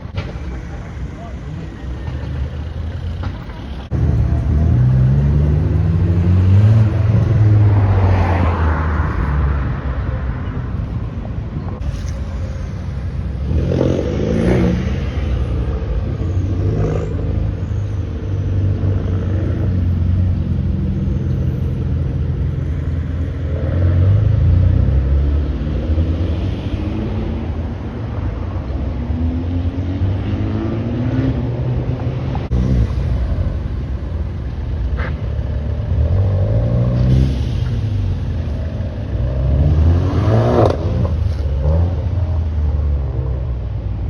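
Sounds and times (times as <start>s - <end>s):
engine revving: 2.3s - 9.1s, 13.4s - 17.6s, 35.0s - 42.8s.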